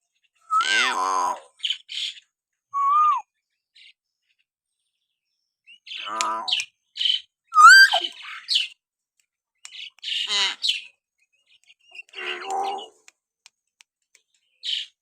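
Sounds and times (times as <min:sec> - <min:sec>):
myna whistling: 0:02.8 - 0:03.2, 0:07.6 - 0:08.2
myna harsh call: 0:07.6 - 0:08.1.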